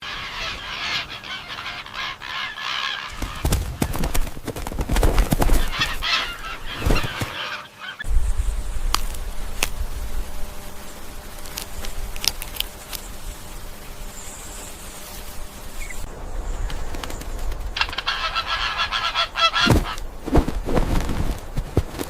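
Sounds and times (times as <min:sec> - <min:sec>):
waterfowl honking: 0:00.0 - 0:04.1, 0:05.6 - 0:08.1, 0:11.1 - 0:20.4
low rumble: 0:08.1 - 0:12.3, 0:14.9 - 0:21.6.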